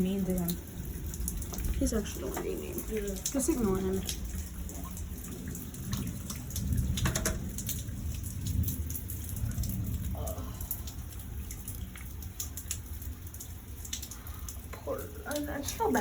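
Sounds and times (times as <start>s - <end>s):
rain falling: 0.0s - 16.0s
raindrops ticking on a surface: 0.0s - 16.0s
low rumble: 1.2s - 12.0s.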